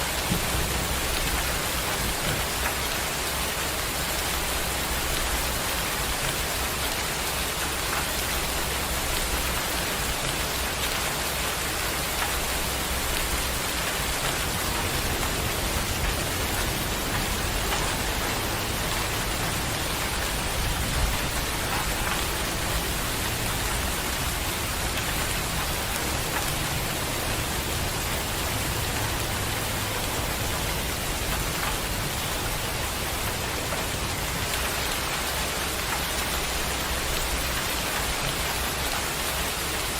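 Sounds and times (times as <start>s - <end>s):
distant thunder rumble: 0.0s - 2.9s
rain falling: 0.0s - 39.9s.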